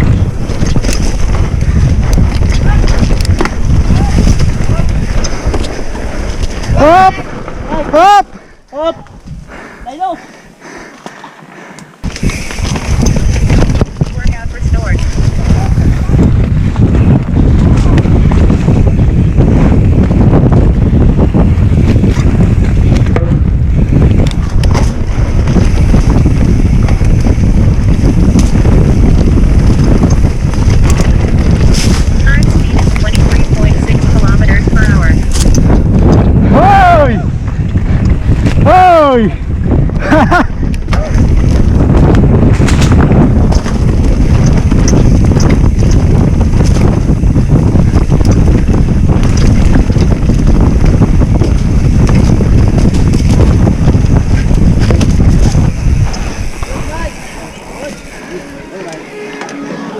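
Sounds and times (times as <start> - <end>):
bicycle clicks and rattles: 0.0 - 7.8, 10.9 - 36.4, 37.4 - 59.6
wind buffeting microphone: 0.0 - 58.9
faint clicks: 10.9 - 13.2.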